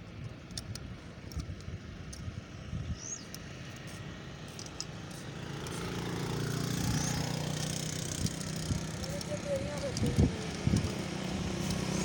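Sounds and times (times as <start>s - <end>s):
engine humming: 2.4s - 12.0s.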